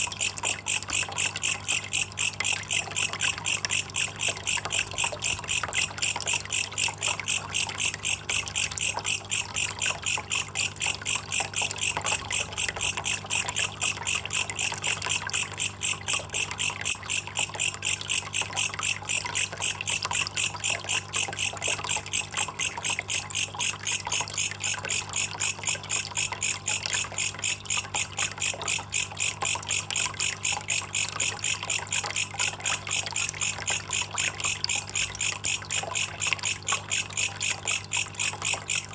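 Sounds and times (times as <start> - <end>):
insect pulsing chirp: 0.0 - 38.9
trickling water: 0.0 - 38.9.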